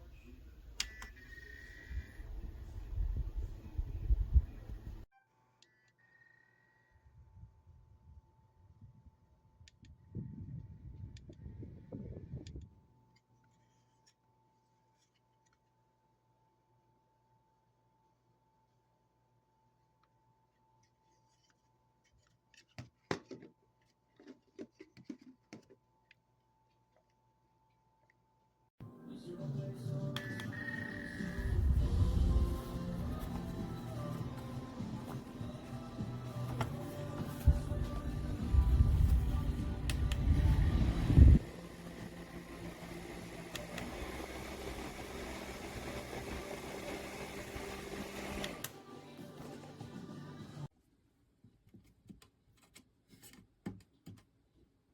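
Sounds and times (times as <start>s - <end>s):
fan motor humming: 29.9s - 50.4s.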